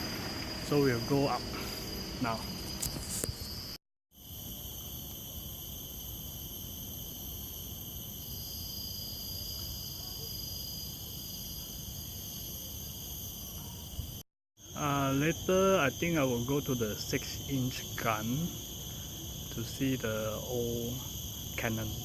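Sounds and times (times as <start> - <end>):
insects droning shrilly: 0.0 - 22.0.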